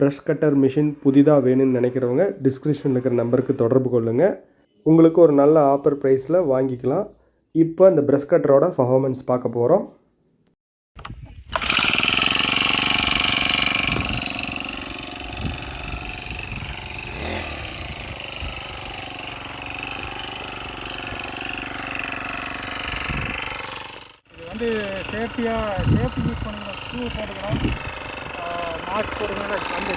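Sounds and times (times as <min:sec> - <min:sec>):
brush cutter engine high revs: 0:11.4 - 0:29.9.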